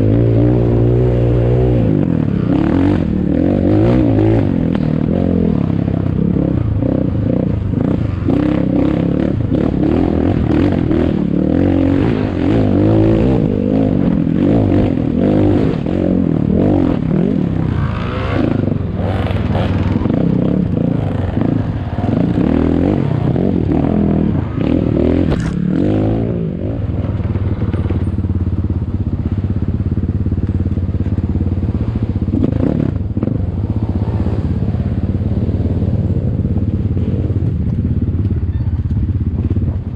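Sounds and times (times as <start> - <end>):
motorcycle engine revving: 0.0 - 39.9
bike rattles and scrapes: 25.2 - 25.7, 26.9 - 33.0.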